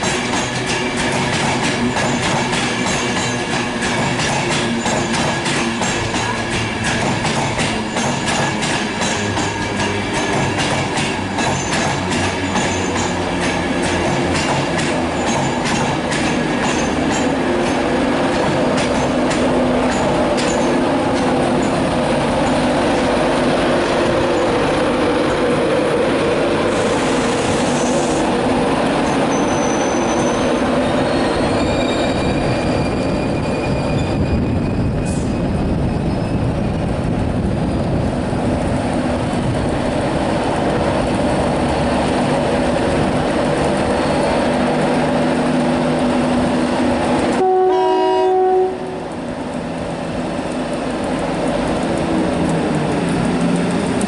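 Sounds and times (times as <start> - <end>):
wheels clicking over rail joints: 0.0 - 23.2, 49.1 - 54.0
train rumbling on track: 0.0 - 54.0
high-pitched wheel squeals: 29.0 - 36.5.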